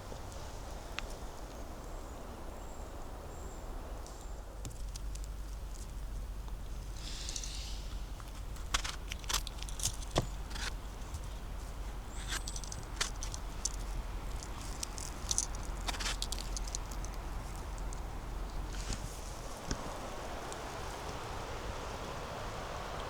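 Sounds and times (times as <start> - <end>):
leaves rustling: 0.0 - 23.0
footsteps on twigs and leaves: 8.3 - 20.7.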